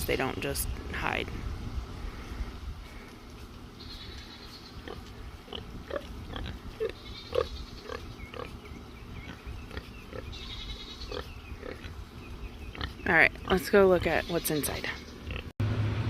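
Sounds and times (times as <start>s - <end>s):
pigs grunting: 4.8s - 8.6s, 9.2s - 12.0s, 12.7s - 14.3s, 14.9s - 15.5s.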